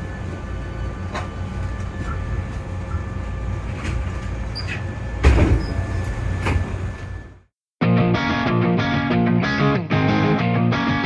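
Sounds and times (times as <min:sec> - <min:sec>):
low hum from stopped train: 0:00.0 - 0:07.5
loud clunk: 0:05.2 - 0:07.2.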